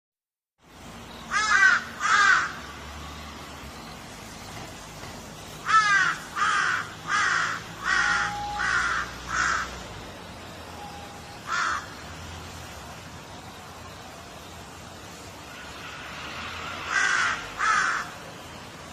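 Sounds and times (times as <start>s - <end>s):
background hiss: 0.6s - 18.9s
crow cawing: 1.3s - 2.7s, 5.6s - 9.8s, 11.4s - 12.0s, 16.8s - 18.2s.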